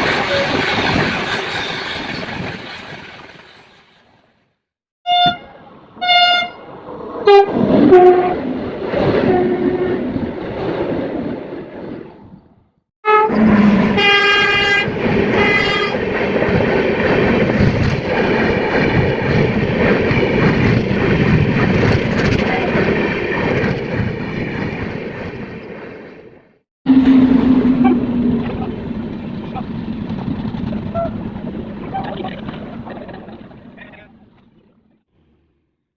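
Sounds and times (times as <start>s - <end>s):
locomotive horn blasts: 5.1s - 6.6s, 7.2s - 8.4s, 13.0s - 16.0s, 26.9s - 28.1s
train wheels clattering on rails: 15.0s - 25.7s.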